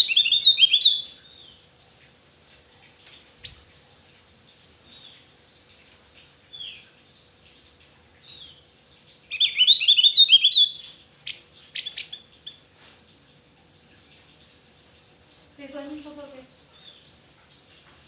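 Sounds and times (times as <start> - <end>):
bird singing: 0.0 - 1.7, 9.3 - 12.7.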